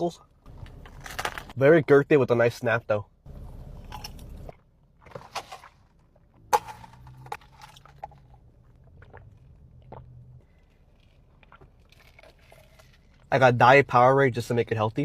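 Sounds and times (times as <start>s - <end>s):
crunchy bites: 0.5s - 1.6s, 9.0s - 13.3s.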